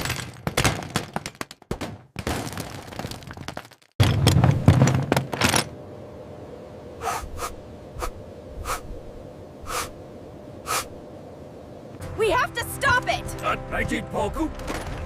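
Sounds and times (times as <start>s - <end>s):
short breathy puffs: 7.0s - 8.9s, 9.6s - 10.0s, 10.7s - 11.0s.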